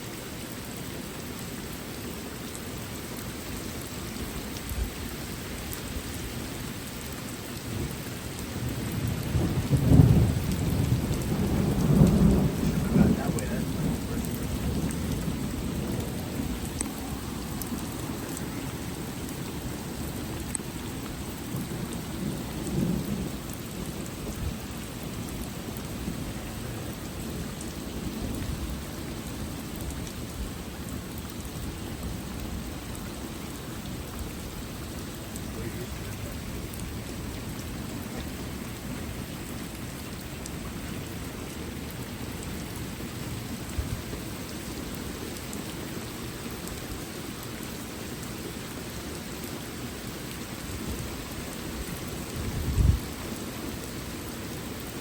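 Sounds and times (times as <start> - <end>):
heavy rain falling: 0.0 - 55.0
rolling thunder rumble: 8.6 - 29.4, 52.4 - 53.1.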